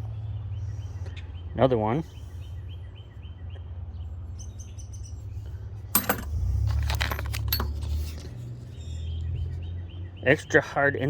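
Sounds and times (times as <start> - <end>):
metal tools clinking: 6.0 - 8.2.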